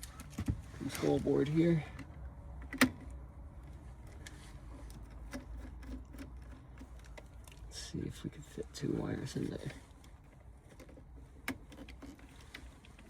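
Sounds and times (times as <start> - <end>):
tool handling noises on wires: 4.0 - 7.7, 9.3 - 13.0.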